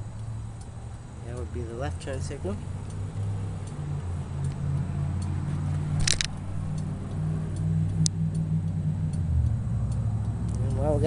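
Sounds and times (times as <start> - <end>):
low steady hum: 0.0 - 11.0
turn-signal flasher ticking: 0.0 - 11.0
sharp clicks: 4.4 - 10.6.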